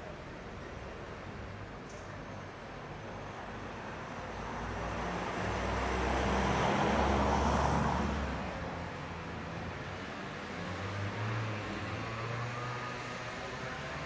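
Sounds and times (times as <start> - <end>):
city street traffic: 0.0 - 14.0
vehicle passing close by: 5.0 - 8.6.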